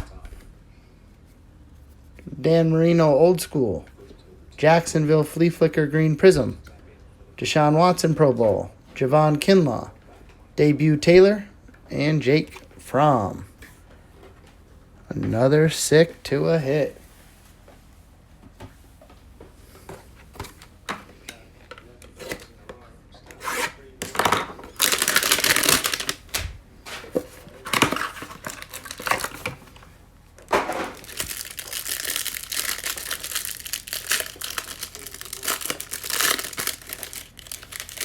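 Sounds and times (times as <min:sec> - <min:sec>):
packaging ripping and crinkling: 0:24.0 - 0:29.8, 0:30.7 - 0:38.0.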